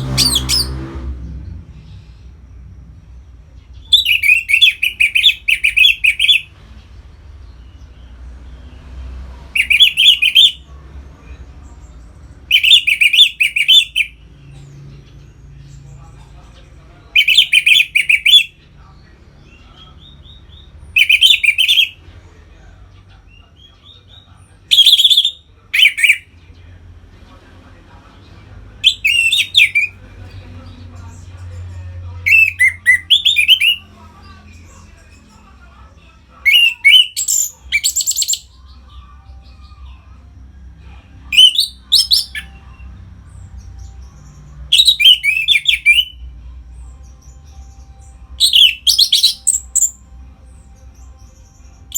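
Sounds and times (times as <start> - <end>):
bird singing whistled phrases: 0.1 - 0.8, 3.8 - 6.5, 9.6 - 10.6, 12.5 - 14.2, 17.2 - 18.5, 21.0 - 21.9, 24.7 - 26.2, 28.8 - 29.9, 32.3 - 33.8, 36.5 - 38.6, 41.3 - 42.5, 44.7 - 46.2, 48.4 - 50.0.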